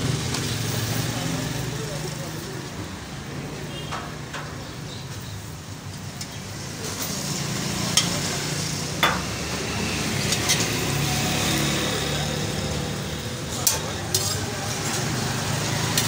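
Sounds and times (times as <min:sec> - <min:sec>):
flatbread sizzling on griddle: 0:00.0 - 0:02.9, 0:03.6 - 0:16.0
metal spatula clinking: 0:07.9 - 0:08.3, 0:13.6 - 0:14.5.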